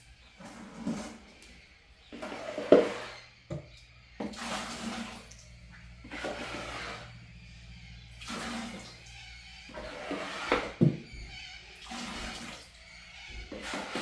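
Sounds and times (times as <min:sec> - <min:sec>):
water sloshing: 0:00.0 - 0:14.0
low steady hum: 0:01.2 - 0:10.1.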